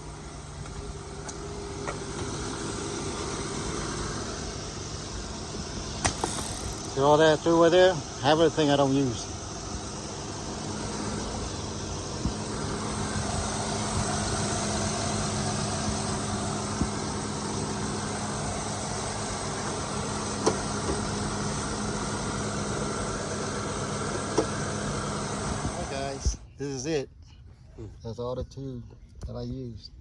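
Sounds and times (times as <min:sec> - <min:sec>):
car engine idling: 0:00.0 - 0:26.5.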